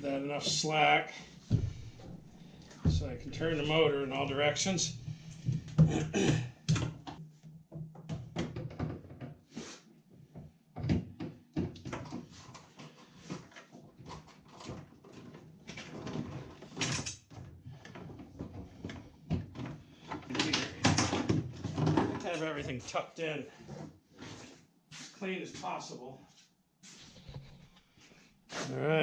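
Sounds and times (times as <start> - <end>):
cables rustling: 0.0 - 7.2.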